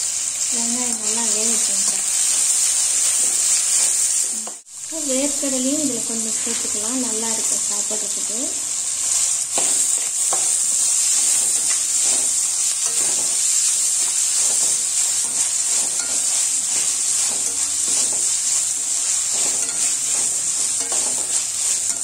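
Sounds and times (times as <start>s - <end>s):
vegetables sizzling in oil: 0.0s - 22.0s
steel spoon scraping pan: 9.1s - 22.0s.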